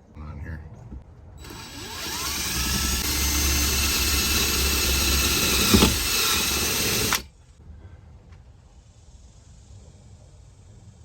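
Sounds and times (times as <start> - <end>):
power drill driving a screw: 1.4 - 7.3.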